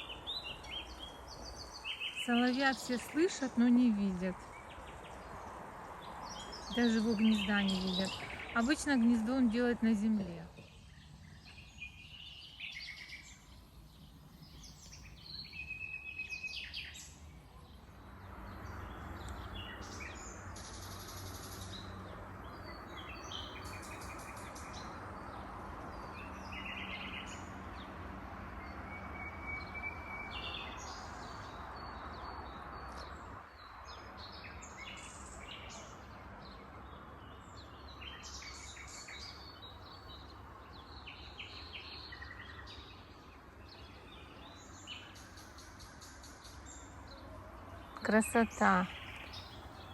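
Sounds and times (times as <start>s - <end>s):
nightingale singing: 0.0s - 5.0s, 6.0s - 13.5s.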